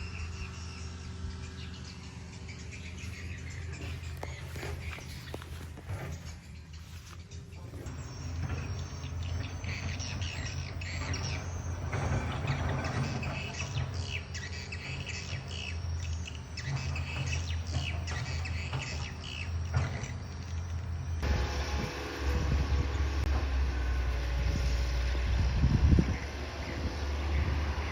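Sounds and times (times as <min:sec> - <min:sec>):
birds chirping: 0:00.0 - 0:27.9
excavator diesel engine hum: 0:00.0 - 0:27.9.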